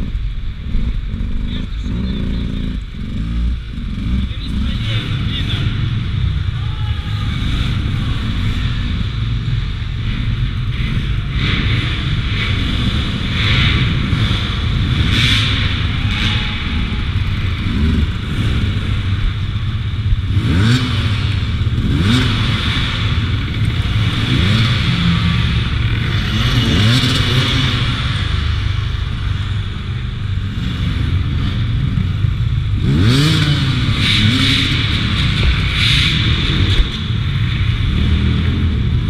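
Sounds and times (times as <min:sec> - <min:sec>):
knocks and clatter of bike: 0:08.4 - 0:39.0.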